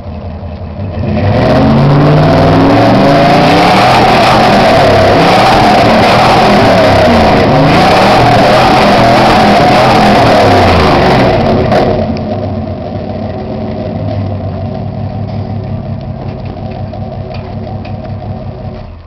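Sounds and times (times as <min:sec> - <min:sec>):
truck engine revving and idling: 0:00.0 - 0:19.0.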